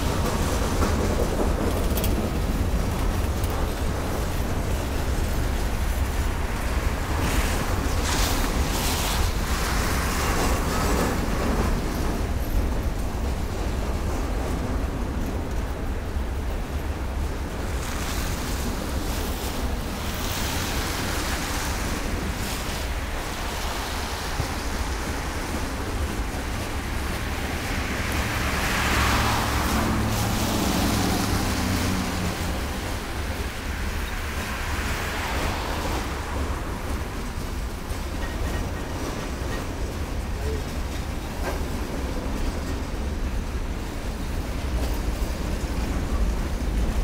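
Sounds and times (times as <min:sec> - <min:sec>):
freight train cars rumbling past: 0:00.0 - 0:47.0
wind buffeting microphone: 0:00.0 - 0:47.0
car passing: 0:26.2 - 0:37.4.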